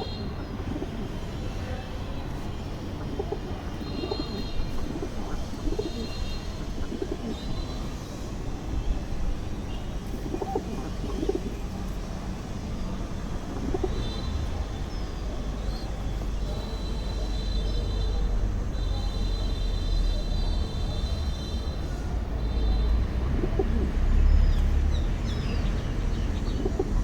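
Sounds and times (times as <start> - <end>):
pigeons cooing: 0.0 - 1.4, 2.2 - 7.9, 10.0 - 12.1, 13.3 - 16.5, 23.0 - 27.0.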